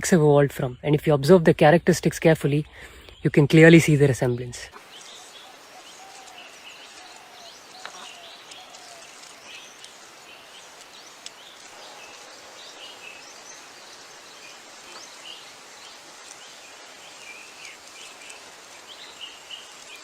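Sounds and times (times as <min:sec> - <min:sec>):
small birds chirping: 0:00.0 - 0:20.0
steady hiss: 0:02.6 - 0:20.0.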